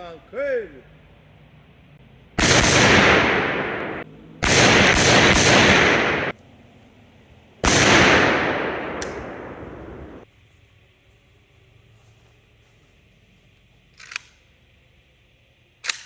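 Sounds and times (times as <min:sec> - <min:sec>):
gunshot volleys: 0:02.4 - 0:06.3, 0:07.6 - 0:10.2.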